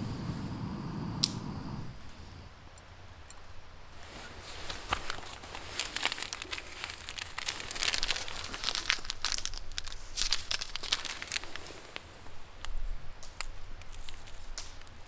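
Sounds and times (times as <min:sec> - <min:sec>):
crinkling and rustling: 0:04.0 - 0:15.0.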